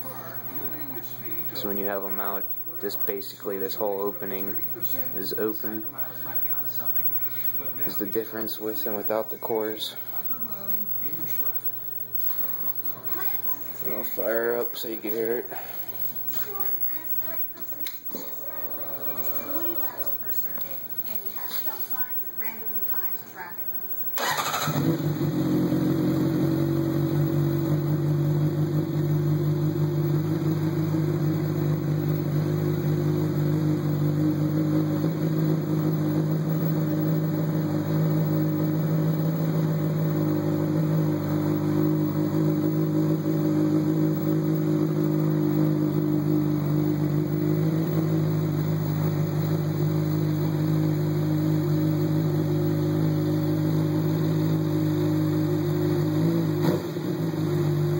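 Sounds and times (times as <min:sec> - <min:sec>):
motorcycle engine idling: 0:00.0 - 0:17.4, 0:24.1 - 0:57.9.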